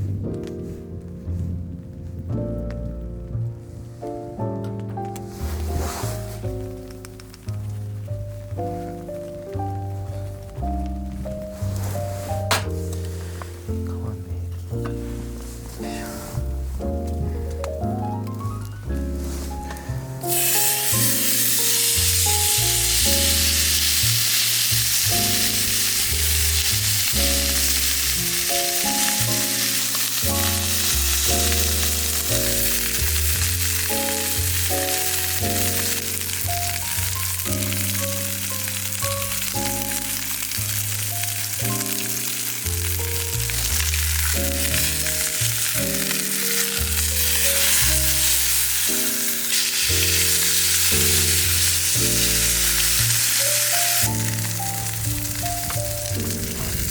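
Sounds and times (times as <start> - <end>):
background music with bass: 0.0 - 56.9
steak sizzling on a griddle: 19.2 - 56.9.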